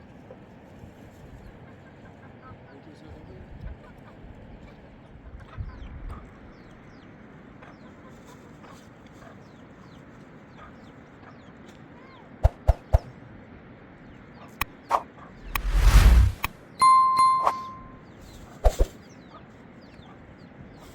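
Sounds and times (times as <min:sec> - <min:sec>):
high falling peeps: 0:16.8 - 0:18.0.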